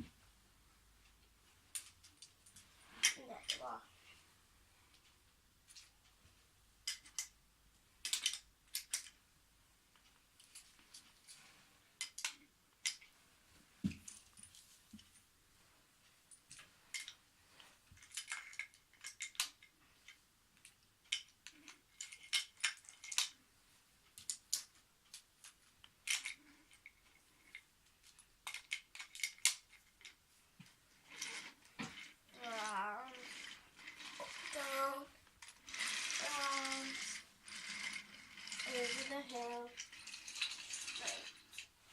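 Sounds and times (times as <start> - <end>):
wooden toy track pieces clacking: 1.7 - 3.8, 6.8 - 7.4, 8.0 - 9.2, 12.0 - 13.1, 16.5 - 17.2, 17.9 - 23.4, 24.1 - 30.2, 31.0 - 41.8.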